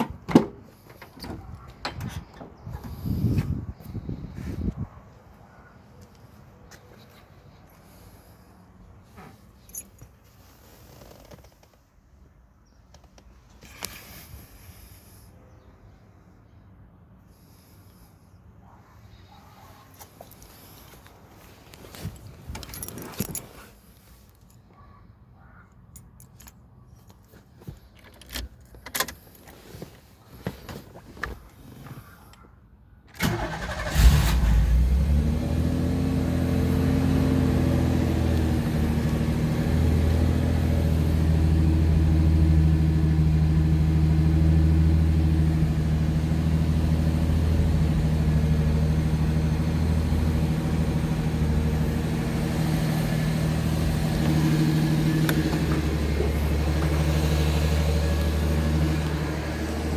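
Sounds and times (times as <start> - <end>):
car engine cranking and idling: 0.0 - 14.6, 20.0 - 24.8, 33.1 - 59.9.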